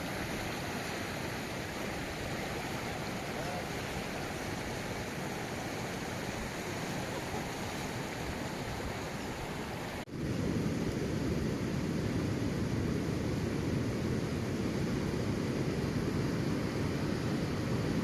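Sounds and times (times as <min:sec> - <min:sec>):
river rushing: 0:00.0 - 0:10.1.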